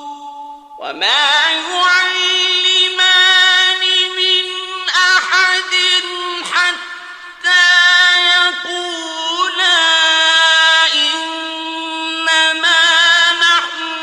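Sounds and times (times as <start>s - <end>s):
man reciting melodically: 0.0s - 14.0s.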